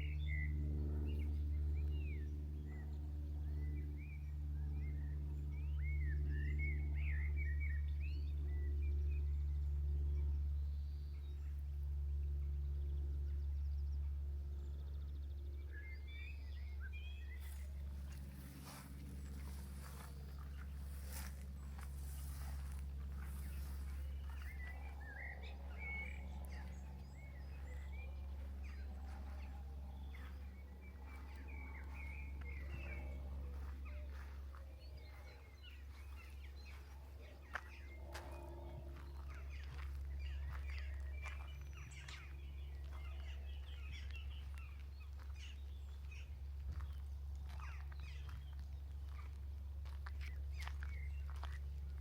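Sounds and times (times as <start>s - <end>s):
songbirds chirping: 0.0s - 52.0s
steady low hum: 0.0s - 52.0s
steady low rumble: 0.0s - 52.0s.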